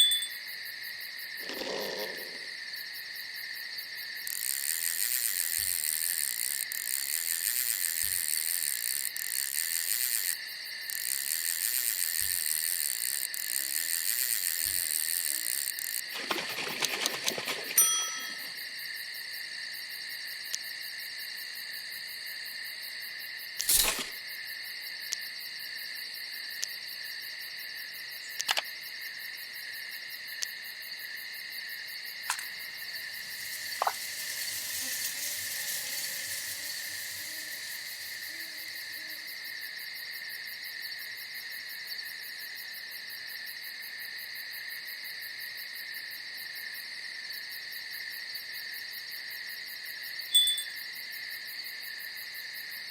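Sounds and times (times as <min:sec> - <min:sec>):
crickets trilling: 0:00.0 - 0:52.9
sharp clicks: 0:28.4 - 0:28.7, 0:32.3 - 0:38.8.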